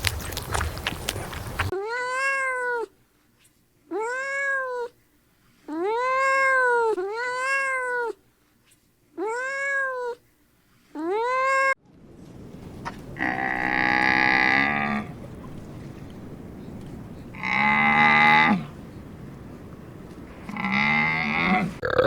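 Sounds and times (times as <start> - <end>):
crackling noise: 0.0 - 1.7
cat meowing: 3.9 - 4.9, 5.9 - 8.2, 9.2 - 10.2.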